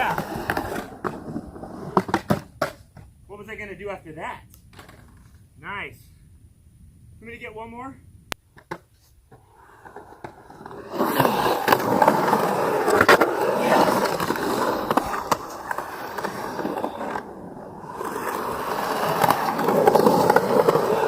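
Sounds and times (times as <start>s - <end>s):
skateboard wheels rolling on concrete: 0.0s - 5.7s, 8.4s - 21.0s
skateboard knocks and clacks: 1.9s - 3.1s.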